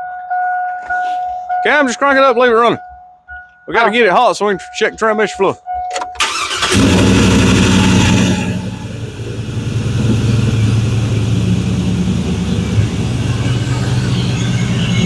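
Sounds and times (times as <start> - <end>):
pickup engine idling: 6.2 - 15.0.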